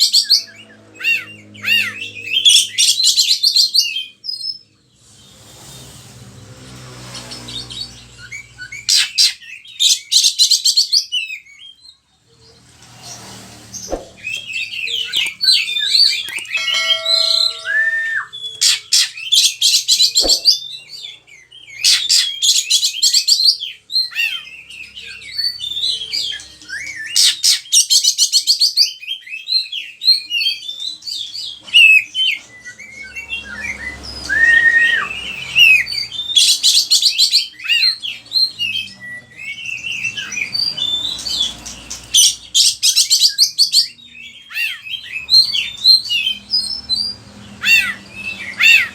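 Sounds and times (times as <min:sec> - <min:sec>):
bird singing whistles and trills: 0:13.9 - 0:48.9.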